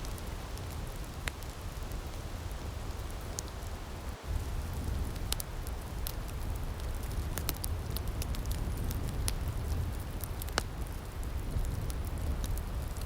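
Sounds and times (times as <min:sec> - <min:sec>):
firepit crackling and popping: 0:00.0 - 0:13.0.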